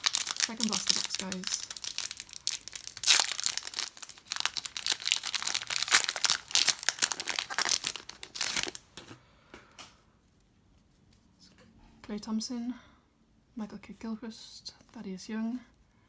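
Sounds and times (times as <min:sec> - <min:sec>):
plastic wrapping crinkling and tearing: 0:00.0 - 0:08.9.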